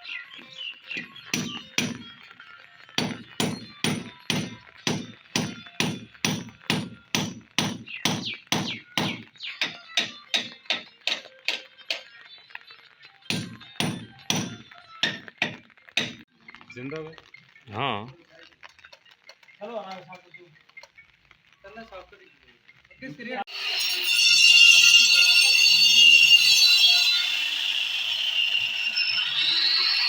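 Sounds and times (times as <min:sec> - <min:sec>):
hammer blows: 0:03.0 - 0:11.2, 0:13.3 - 0:16.2.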